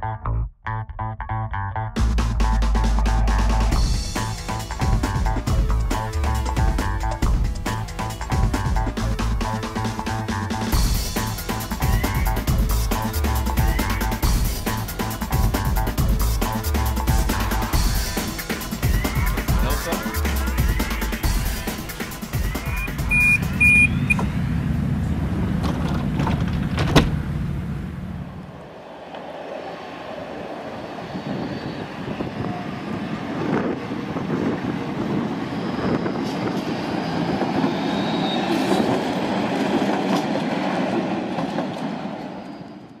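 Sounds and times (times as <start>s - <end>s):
low rumble of tram: 1.2s - 43.0s
tram running on rails: 3.0s - 43.0s
short high beeps: 22.8s - 24.2s.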